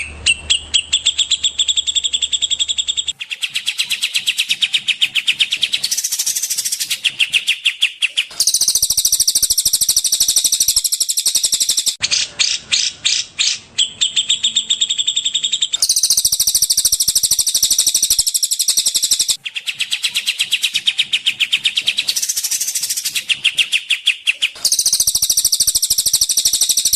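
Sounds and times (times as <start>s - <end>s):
songbirds singing fast trills: 0.0s - 26.9s.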